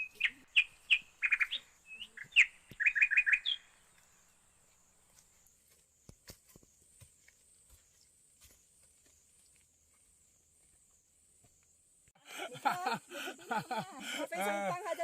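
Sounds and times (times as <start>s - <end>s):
songbird chirping and whistling: 0.0s - 4.2s.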